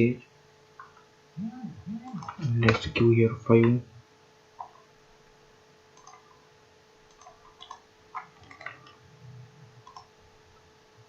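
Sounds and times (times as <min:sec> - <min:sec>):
faint electrical hum: 0:00.0 - 0:11.0
mouse and keyboard clicks: 0:06.0 - 0:06.4, 0:07.1 - 0:09.0, 0:09.8 - 0:10.1.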